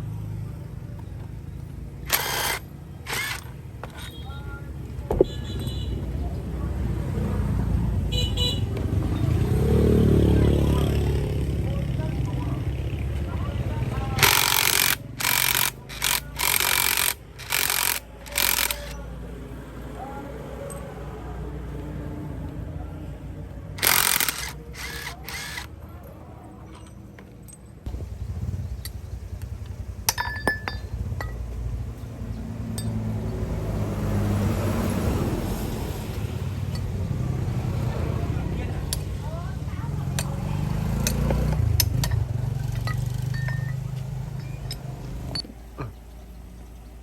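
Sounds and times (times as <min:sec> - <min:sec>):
air tool bursts: 0:02.1 - 0:04.1, 0:14.2 - 0:18.9, 0:23.8 - 0:25.7
metal tools clinking: 0:02.1 - 0:04.3, 0:14.2 - 0:19.0, 0:23.8 - 0:27.9, 0:30.1 - 0:31.4, 0:36.7 - 0:37.0, 0:41.0 - 0:45.6
low engine rumble: 0:10.2 - 0:47.0.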